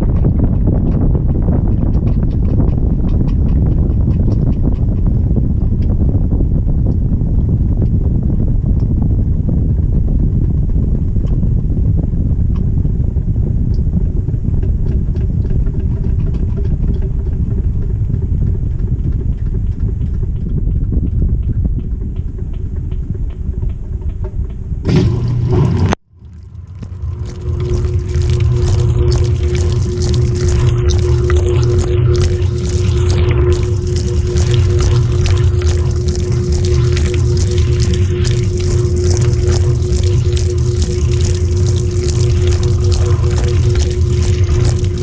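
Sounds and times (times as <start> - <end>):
washing machine rumbling: 0.0 - 45.0.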